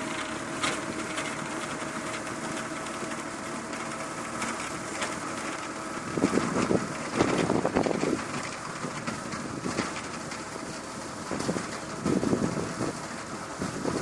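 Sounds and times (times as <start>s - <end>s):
tractor engine running: 0.0s - 14.0s
wind noise on microphone: 6.0s - 14.0s.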